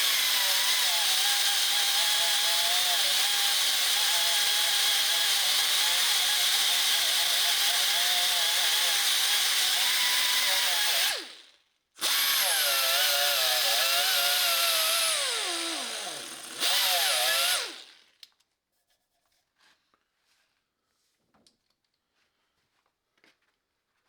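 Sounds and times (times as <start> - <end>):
power tool grinding metal: 0.0 - 11.4, 12.0 - 18.0.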